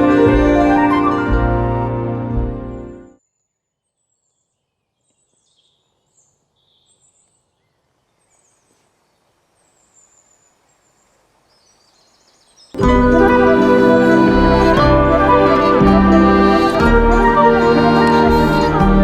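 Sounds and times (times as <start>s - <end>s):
background music: 0.0s - 3.2s, 12.8s - 19.0s.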